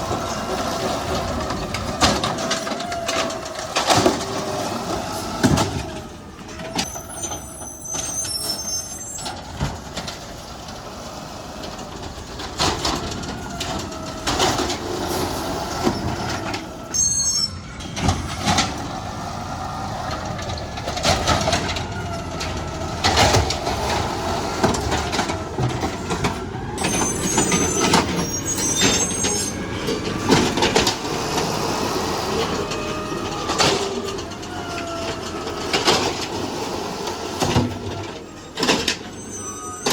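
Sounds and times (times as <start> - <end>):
garbage truck mechanical whine: 0.0 - 39.9
high-pitched squealing: 6.5 - 9.5, 12.9 - 22.7, 26.4 - 36.2, 38.3 - 39.9.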